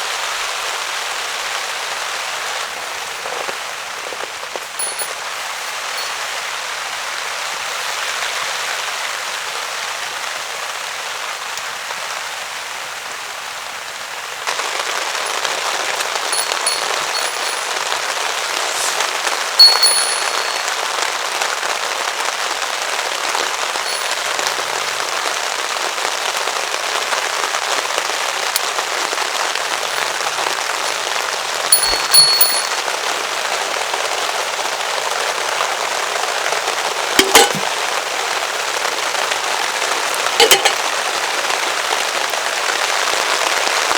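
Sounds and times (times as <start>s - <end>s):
heavy rain on a tarp: 0.0s - 19.6s, 20.4s - 43.9s
sharp clink: 4.8s - 5.2s, 6.0s - 6.2s, 16.3s - 18.0s, 19.6s - 20.9s, 23.9s - 24.8s, 31.8s - 32.9s, 37.2s - 37.6s, 40.4s - 40.8s.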